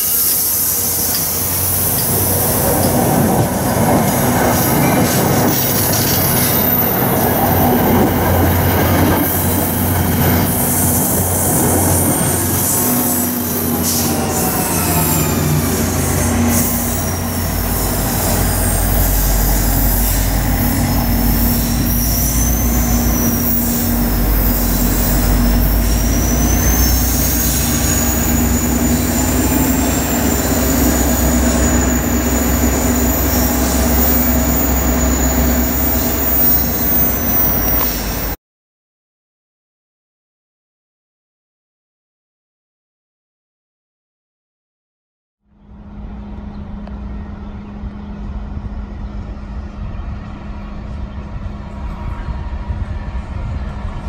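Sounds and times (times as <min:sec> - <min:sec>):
train rumble: 0:00.0 - 0:38.4, 0:45.5 - 0:54.0
train wheels squealing on rail: 0:00.0 - 0:38.4.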